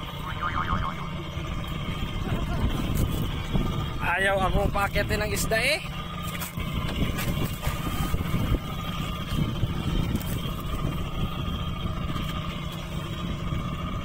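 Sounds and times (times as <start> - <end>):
small boat engine running: 0.0 - 14.0
wind buffeting microphone: 0.0 - 14.0.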